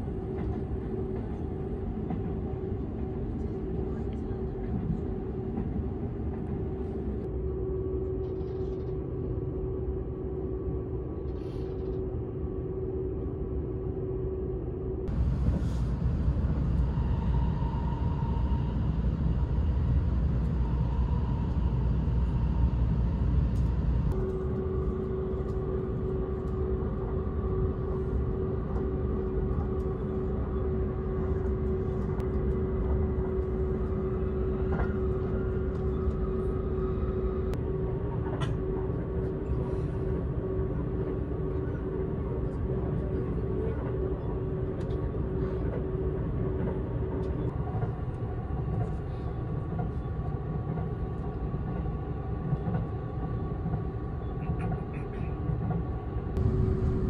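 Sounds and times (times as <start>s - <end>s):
train cabin rumble: 15.0s - 57.0s
steady hum: 56.0s - 57.0s.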